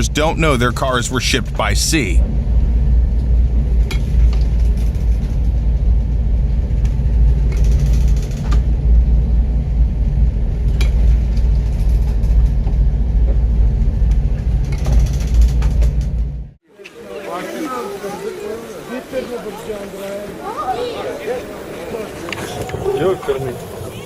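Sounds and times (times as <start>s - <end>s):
low rumble: 1.4s - 16.6s.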